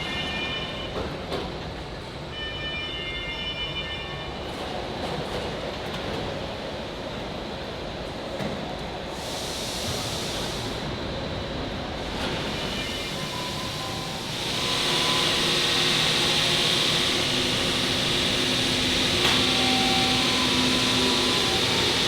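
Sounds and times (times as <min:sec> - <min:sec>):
machinery running: 0:14.1 - 0:22.0.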